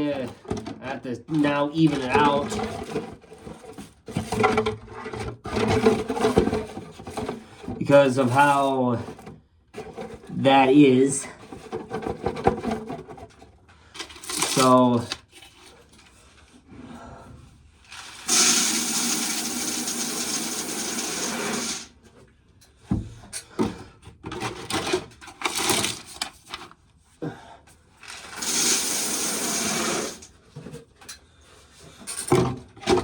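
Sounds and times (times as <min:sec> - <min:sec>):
corn sheller grinding: 0:14.0 - 0:15.2, 0:17.9 - 0:21.9, 0:28.0 - 0:30.3.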